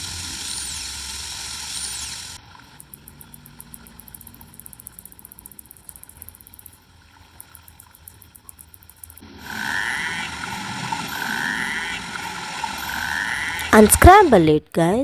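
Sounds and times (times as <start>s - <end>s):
rapid underwater clicks: 2.6s - 9.3s
rasping pulsed whale call: 9.2s - 14.0s.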